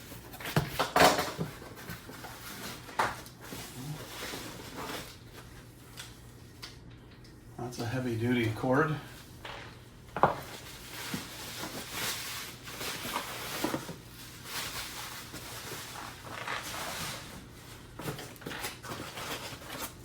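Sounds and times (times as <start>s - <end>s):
scrapes of items handled: 0.0s - 6.2s, 9.1s - 20.0s
packing material rustling: 1.2s - 6.2s, 10.4s - 20.0s.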